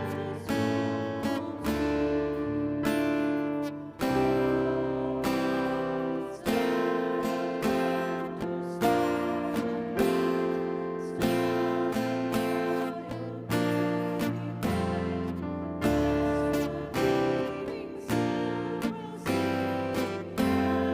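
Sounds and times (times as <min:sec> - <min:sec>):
acoustic guitar strumming chords: 0:00.0 - 0:20.9.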